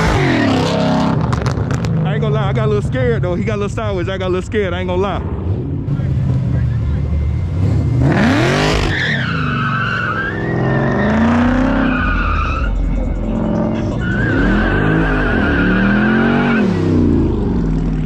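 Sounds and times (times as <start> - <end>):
car engine revving: 0.0 - 18.0
car tyres squealing: 6.0 - 17.4.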